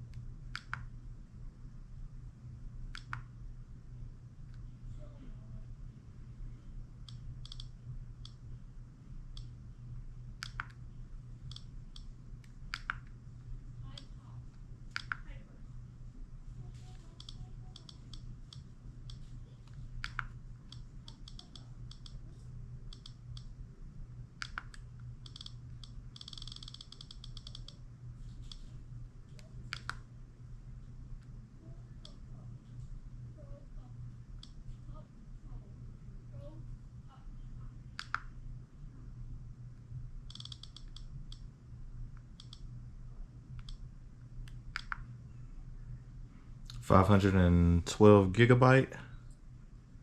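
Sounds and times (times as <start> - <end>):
low hum: 0.0 - 50.0
sharp clicks: 7.1 - 8.4, 10.4 - 10.8, 11.5 - 13.1, 24.4 - 27.8, 40.3 - 41.4, 42.2 - 42.7, 43.6 - 43.8, 44.5 - 45.1
click wheel ticking: 24.4 - 27.8, 40.3 - 41.4, 42.4 - 42.6.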